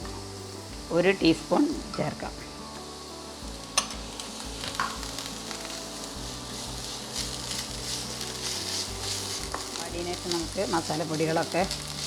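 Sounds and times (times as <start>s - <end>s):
onions sizzling in a pan: 0.0s - 12.0s
spoon tapping pan: 3.7s - 5.7s.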